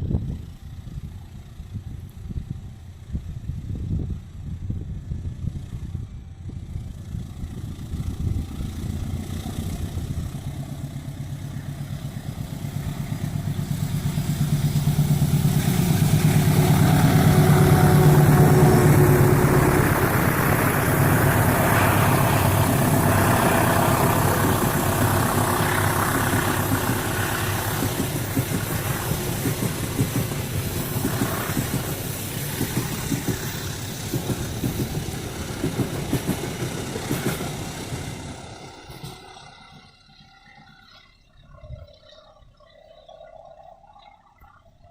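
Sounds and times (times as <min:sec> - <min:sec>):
diesel locomotive engine drone: 0:00.0 - 0:44.9
train wheels clattering: 0:08.0 - 0:41.7.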